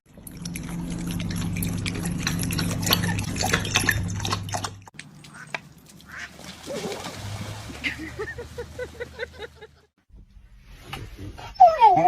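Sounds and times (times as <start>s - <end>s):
steady low hum: 0.1s - 5.9s
water splashing and dripping: 0.1s - 9.7s.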